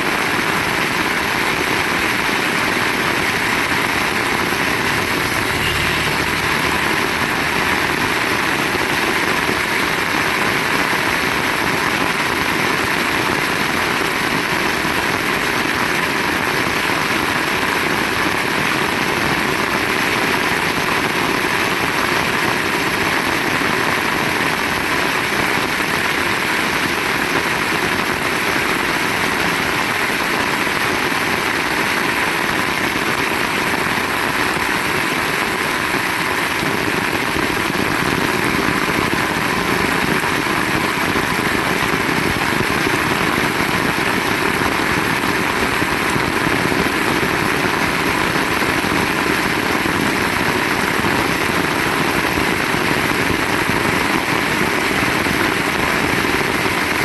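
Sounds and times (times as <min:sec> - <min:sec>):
heavy rain falling: 0:00.2 - 0:13.4.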